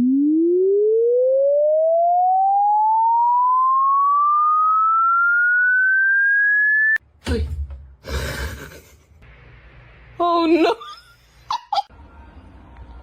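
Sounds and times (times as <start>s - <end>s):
rising electronic tone: 0.0s - 7.0s.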